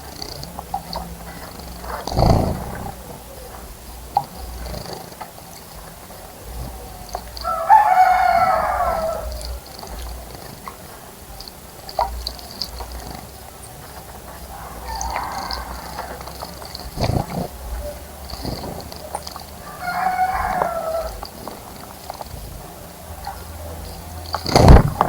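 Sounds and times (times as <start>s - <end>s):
small birds chirping: 0.0s - 25.0s
rooster crowing: 7.4s - 9.8s, 14.4s - 16.8s, 19.6s - 21.4s.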